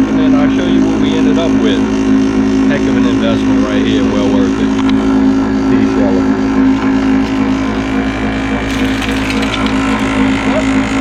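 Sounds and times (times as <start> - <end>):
electric sheller motor hum: 0.0 - 11.0
pods rattling through rollers: 7.0 - 10.8.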